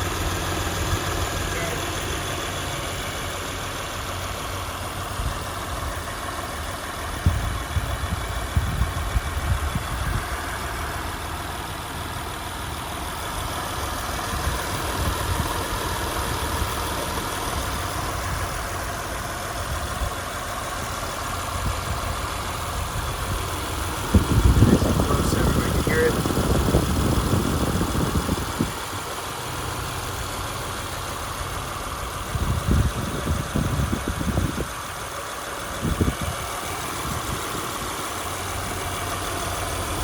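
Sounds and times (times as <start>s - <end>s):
car engine idling: 0.0s - 40.0s
low bumps: 13.0s - 34.8s.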